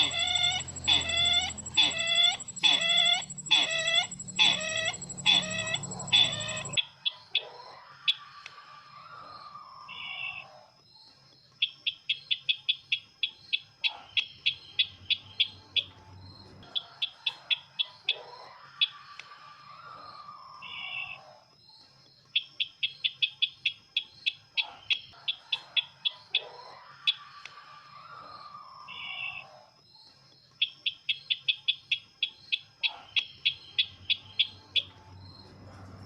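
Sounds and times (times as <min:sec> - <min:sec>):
harsh bird calls: 0:00.0 - 0:06.8
ticking bird chirps: 0:00.0 - 0:06.8.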